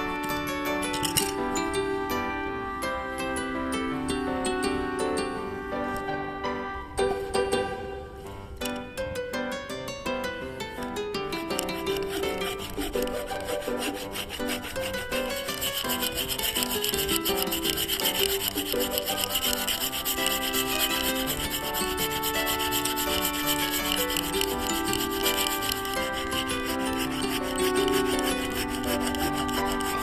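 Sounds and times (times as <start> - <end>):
handsaw cutting wood: 11.5 - 30.0.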